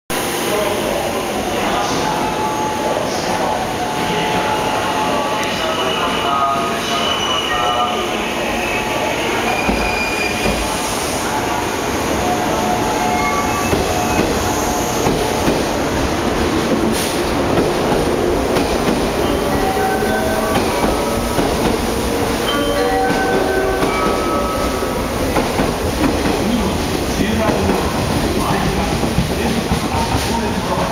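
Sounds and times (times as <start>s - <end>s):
wheels rumbling on rail: 9.6s - 30.9s.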